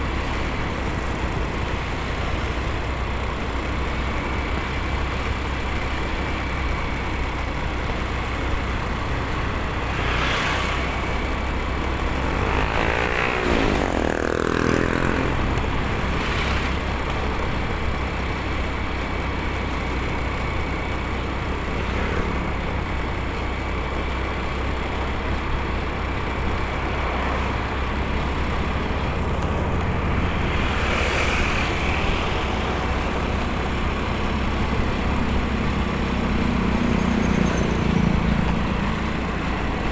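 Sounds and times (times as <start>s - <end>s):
motorcycle engine and road rumble: 0.0s - 39.9s
vehicle passing by: 9.8s - 11.4s, 12.0s - 17.0s, 26.8s - 39.8s.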